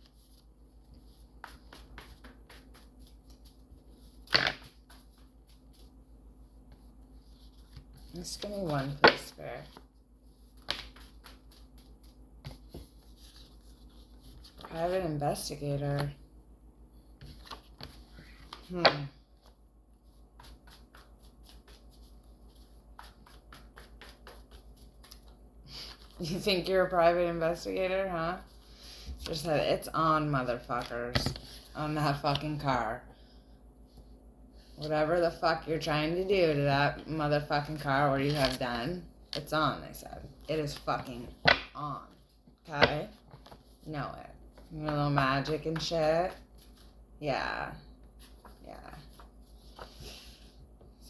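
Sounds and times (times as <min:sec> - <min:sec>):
cards being shuffled: 0:07.3 - 0:14.8, 0:38.2 - 0:38.6.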